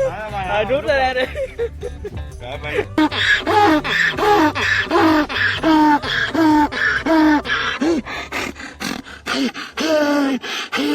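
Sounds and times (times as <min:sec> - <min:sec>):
person giving pitched calls: 0:02.9 - 0:10.9.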